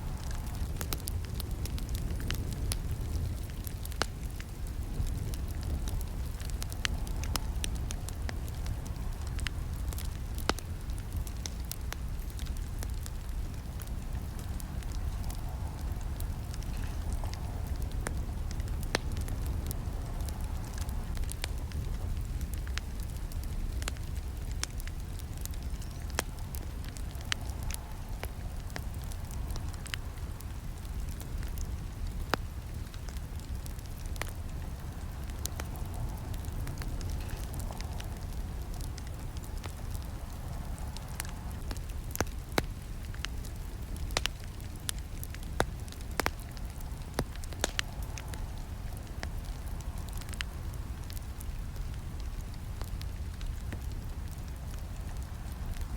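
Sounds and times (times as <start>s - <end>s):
campfire crackles and snaps: 0.0s - 55.9s
low rush of flames: 0.0s - 55.9s.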